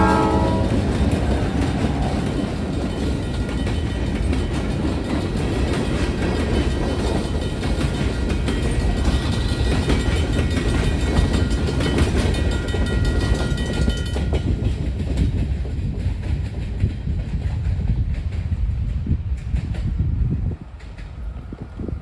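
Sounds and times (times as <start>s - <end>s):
freight train rumbling: 0.0s - 22.0s
wheels clacking on rails: 0.0s - 22.0s.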